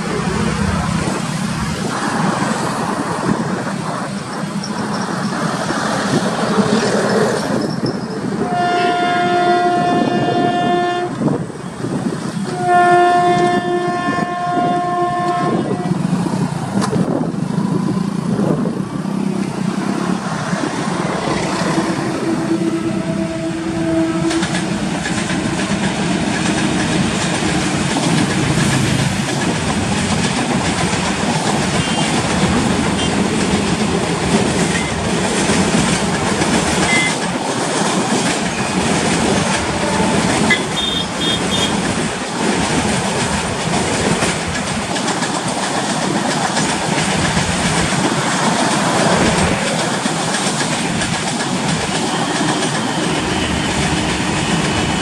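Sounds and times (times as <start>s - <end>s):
freight train rolling on rails: 0.0s - 55.0s
passenger train passing: 0.0s - 55.0s
high wheel squeal: 4.2s - 5.5s, 7.0s - 8.4s.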